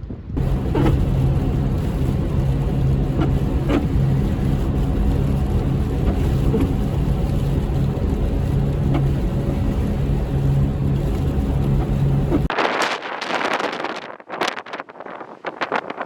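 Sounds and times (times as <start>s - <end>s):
road noise: 0.0s - 16.0s
low engine drone: 0.2s - 12.5s.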